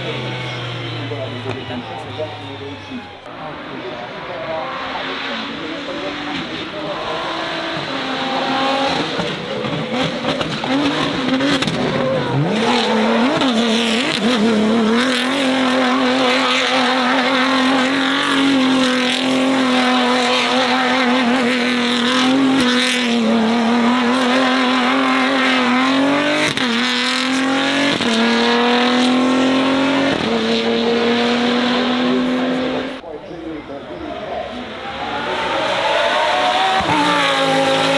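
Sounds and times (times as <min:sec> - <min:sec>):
tyres squealing: 0:00.0 - 0:26.8
car engine at high revs: 0:00.0 - 0:37.9.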